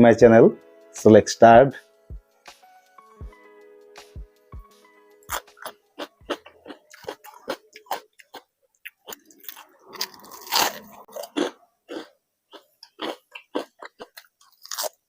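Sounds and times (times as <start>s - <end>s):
chewing and crunching food: 5.2s - 15.0s.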